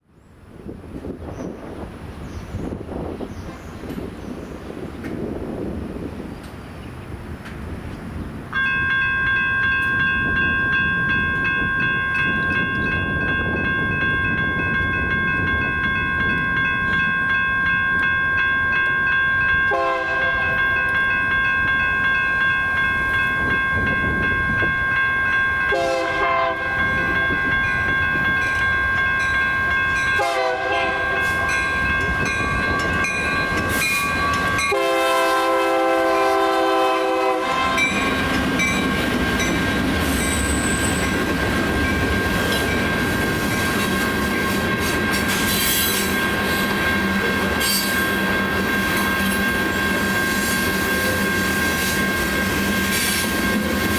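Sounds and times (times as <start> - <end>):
train rumble: 0.2 - 53.9
crossing signal bells ringing: 8.5 - 53.9
locomotive horn blasts: 19.7 - 20.7, 25.7 - 27.0, 30.2 - 31.6, 34.5 - 38.0.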